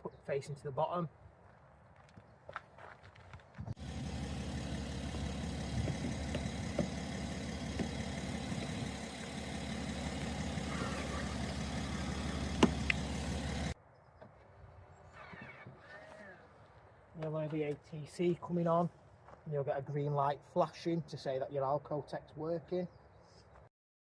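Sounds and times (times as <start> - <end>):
car engine idling: 3.8 - 13.8.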